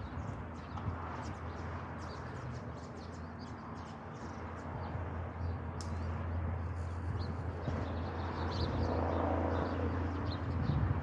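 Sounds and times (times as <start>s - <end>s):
small birds chirping: 0.0s - 11.0s
sharp click: 5.8s - 6.0s.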